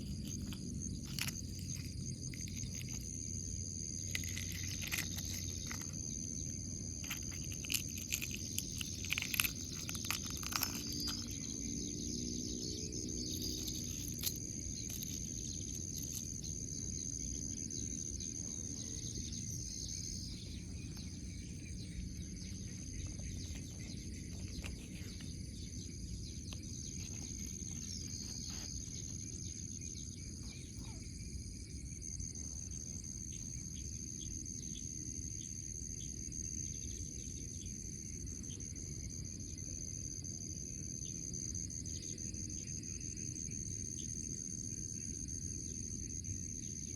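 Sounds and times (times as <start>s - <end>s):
low background rumble: 0.0s - 34.4s
high-pitched insect trill: 0.0s - 46.9s.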